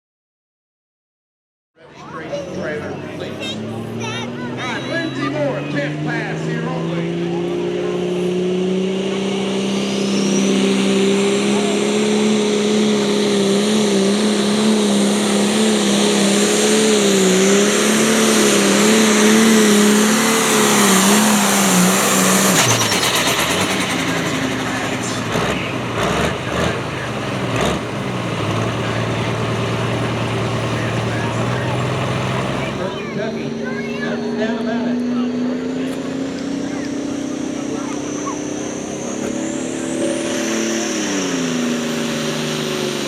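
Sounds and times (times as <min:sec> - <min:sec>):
diesel engine at full throttle: 0:01.8 - 0:43.0.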